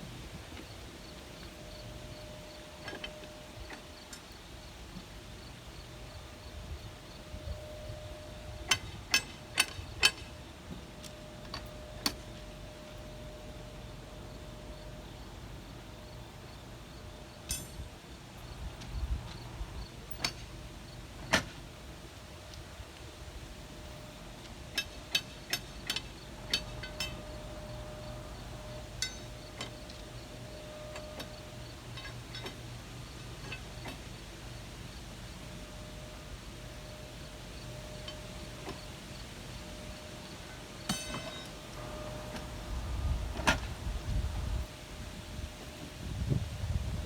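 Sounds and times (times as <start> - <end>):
faint steady hum: 0.0 - 47.0
ringing metal clanks: 7.3 - 15.2, 17.4 - 17.9, 24.7 - 32.7, 39.6 - 42.8.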